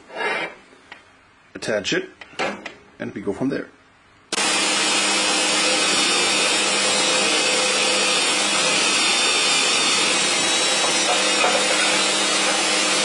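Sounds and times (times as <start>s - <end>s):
electric power tool cutting aluminum: 4.3s - 13.0s.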